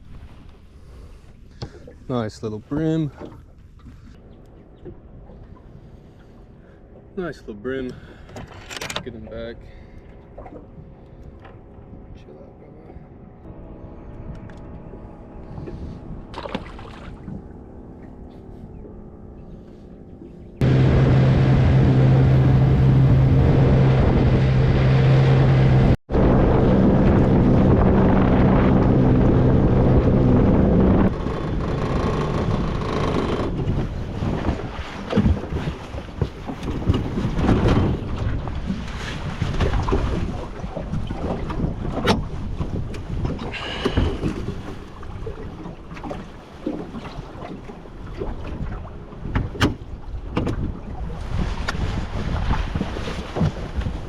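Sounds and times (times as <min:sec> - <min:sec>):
water noise: 0:00.0 - 0:54.0
outboard motor running: 0:03.2 - 0:54.0
wind buffeting microphone: 0:13.5 - 0:54.0.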